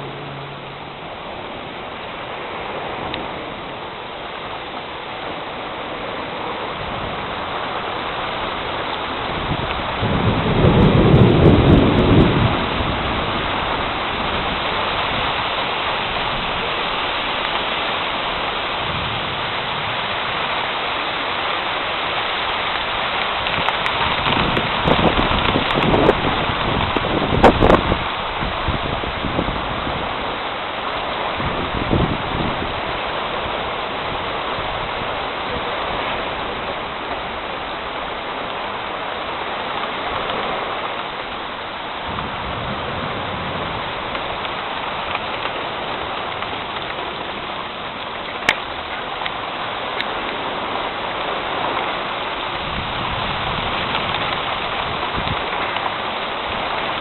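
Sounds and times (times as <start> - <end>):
heavy rain falling: 0.0 - 57.0
thunder rumble: 5.2 - 16.9, 23.2 - 30.4, 41.9 - 57.0.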